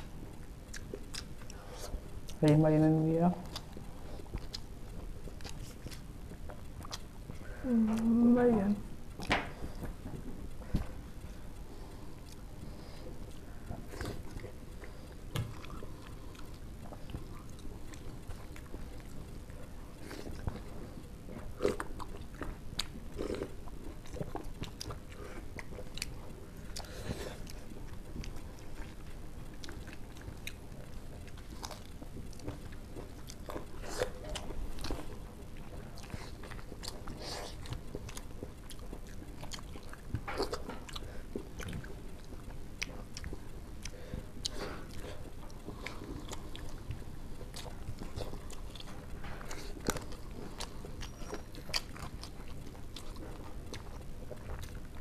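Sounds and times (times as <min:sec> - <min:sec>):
people chewing food: 0:00.0 - 0:55.0.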